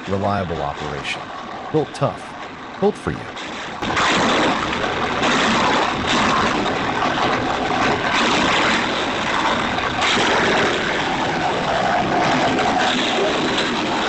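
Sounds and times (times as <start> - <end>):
wood chipper shredding branches: 3.6 - 14.0.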